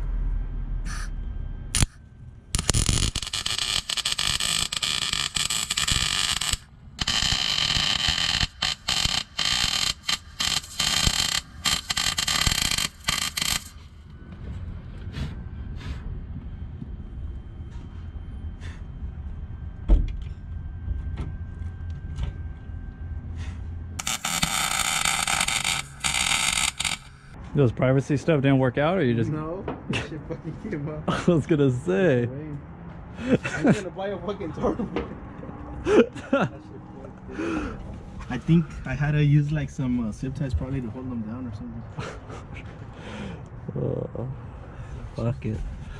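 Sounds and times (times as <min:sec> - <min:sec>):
welder arc crackling and hissing: 0:01.8 - 0:14.0, 0:24.0 - 0:27.4.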